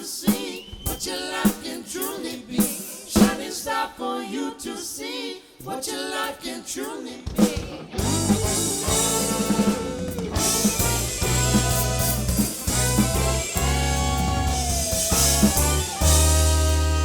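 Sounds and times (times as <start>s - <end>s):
live band playing: 8.0s - 17.0s
loud final chord ringing: 8.3s - 17.0s.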